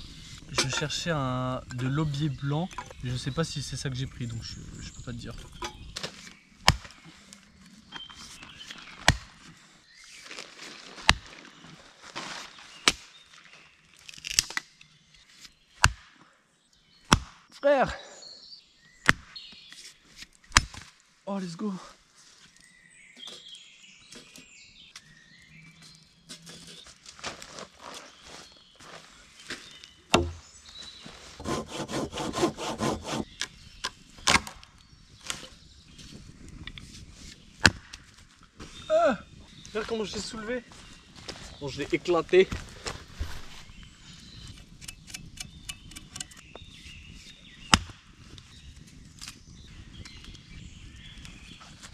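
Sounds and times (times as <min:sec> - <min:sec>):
axe chopping wood: 0:06.6 - 0:07.0, 0:09.0 - 0:09.4, 0:11.1 - 0:11.3, 0:15.8 - 0:16.2, 0:17.1 - 0:17.5, 0:19.0 - 0:19.3, 0:20.5 - 0:20.8, 0:30.1 - 0:30.5, 0:34.2 - 0:34.6, 0:37.6 - 0:37.9, 0:47.7 - 0:48.0
sharp knock on wood: 0:30.2 - 0:30.4
hand saw cutting wood: 0:31.4 - 0:33.4
faint rustling: 0:42.5 - 0:43.7.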